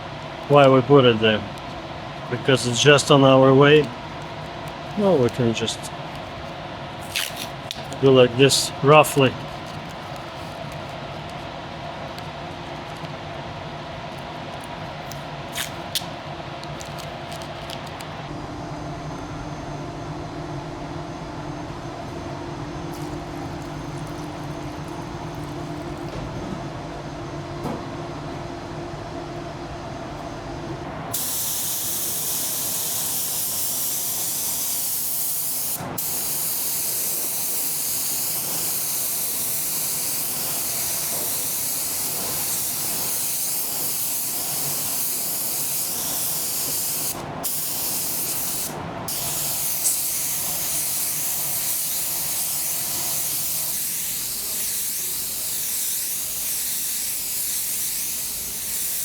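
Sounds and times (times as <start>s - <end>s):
paint spray gun hissing: 31.1s - 59.0s.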